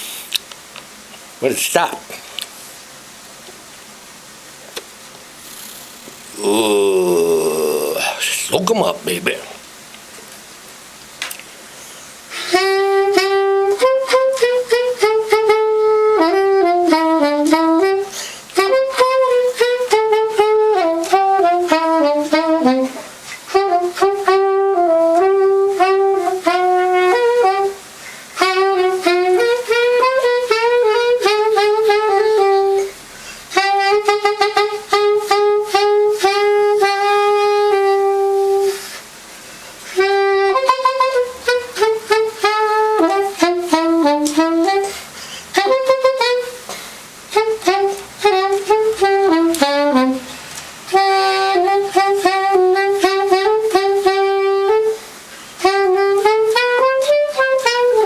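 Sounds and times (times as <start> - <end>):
soprano saxophone melody: 12.3 - 39.0, 39.8 - 58.0.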